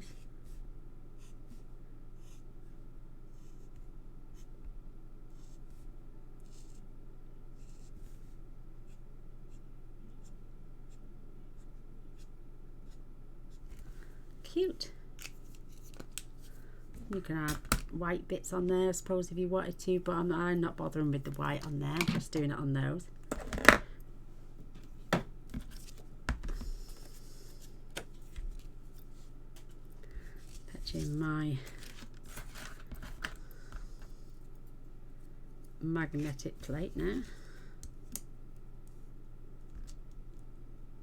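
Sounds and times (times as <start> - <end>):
steady low hum: 0.0 - 41.0
marker pen scratching card: 2.2 - 2.4, 5.4 - 5.6, 6.4 - 6.8, 7.6 - 8.0
paper rustling: 15.2 - 17.6, 24.8 - 34.4.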